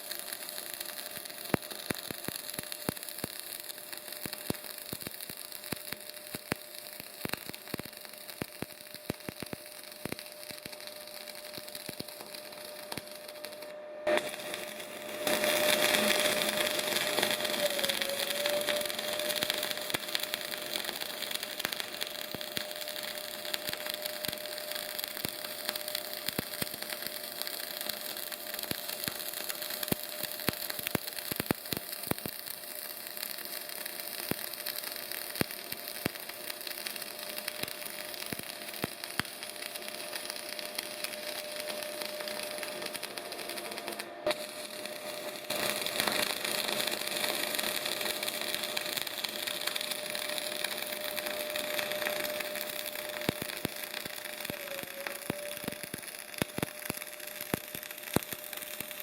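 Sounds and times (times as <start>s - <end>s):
welding arc crackling: 0.0s - 59.0s
steady high tone: 54.4s - 55.9s.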